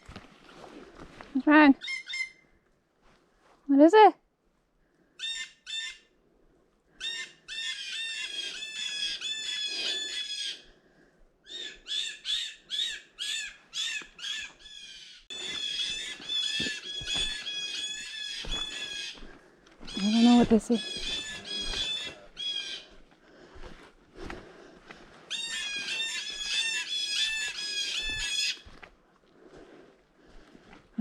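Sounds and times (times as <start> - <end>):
birds harsh alarm calls: 1.8 - 2.4, 5.2 - 6.1, 7.0 - 10.7, 11.5 - 22.9, 25.3 - 28.7.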